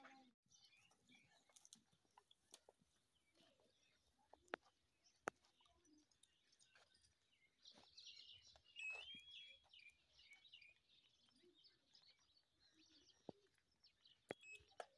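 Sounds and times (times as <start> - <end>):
faint bird chirping: 0.0 - 14.9
faint clicks: 0.9 - 3.6, 4.3 - 7.1.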